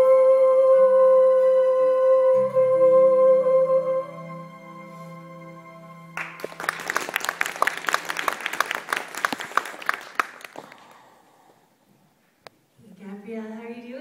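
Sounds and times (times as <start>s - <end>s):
audience clapping: 6.2s - 11.3s.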